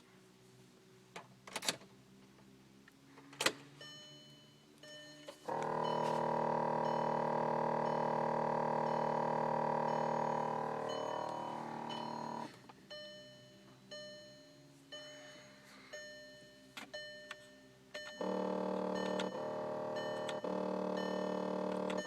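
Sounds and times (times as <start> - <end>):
loud electrical buzz: 5.5 - 12.5, 18.2 - 22.0.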